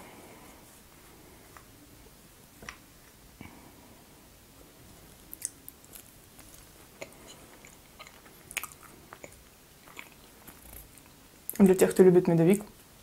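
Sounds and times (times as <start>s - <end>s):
chewing cake: 5.3s - 11.7s.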